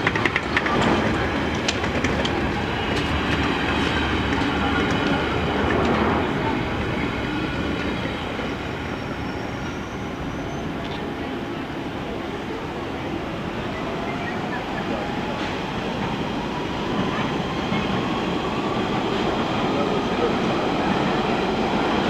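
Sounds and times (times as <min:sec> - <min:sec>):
wheels clicking over rail joints: 0:00.0 - 0:07.0
train rumbling: 0:00.0 - 0:22.0
faint high wheel squeal: 0:07.9 - 0:11.6.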